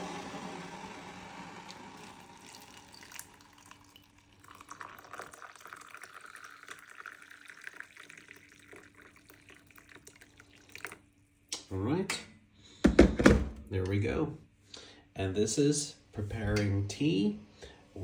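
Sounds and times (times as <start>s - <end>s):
hot water pouring into a cup: 0.0s - 11.3s.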